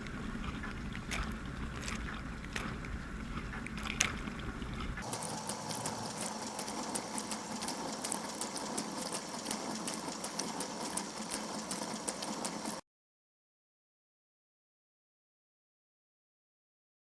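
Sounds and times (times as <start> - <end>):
water droplets ticking on camera: 0.6 - 12.8
water spray hissing: 5.0 - 12.1.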